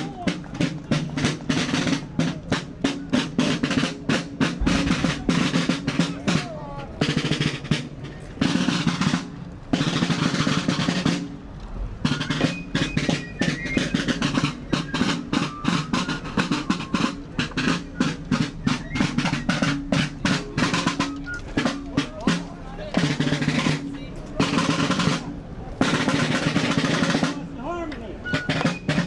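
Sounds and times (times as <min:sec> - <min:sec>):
marching snare drums: 0:00.0 - 0:29.0
bass drum: 0:04.2 - 0:06.5.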